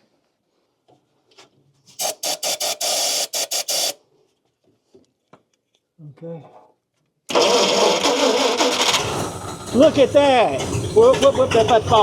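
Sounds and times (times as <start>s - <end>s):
engine starter cranking: 7.3s - 12.0s.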